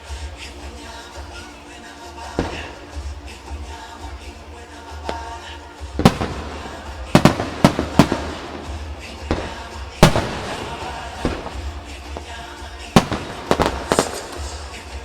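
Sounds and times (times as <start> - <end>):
background music: 0.0 - 15.0
fireworks bursting: 0.0 - 15.0.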